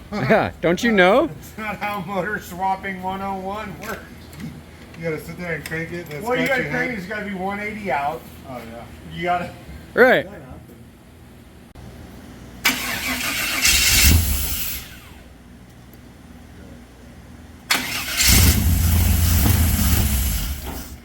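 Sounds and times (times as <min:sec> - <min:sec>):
buggy engine revving: 0:12.6 - 0:15.2, 0:17.7 - 0:21.0.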